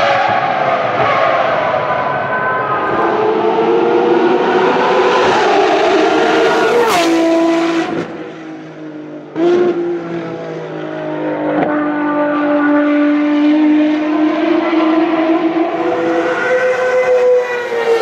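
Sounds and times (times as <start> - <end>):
racing car engines at high revs: 0.0 - 18.0.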